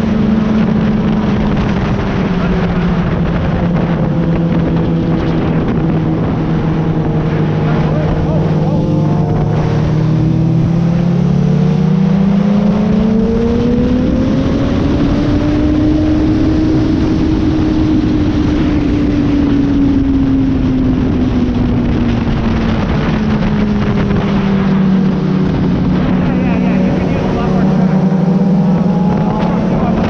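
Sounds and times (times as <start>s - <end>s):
motorcycle engine revving: 0.0s - 30.0s
wind rush: 0.0s - 30.0s.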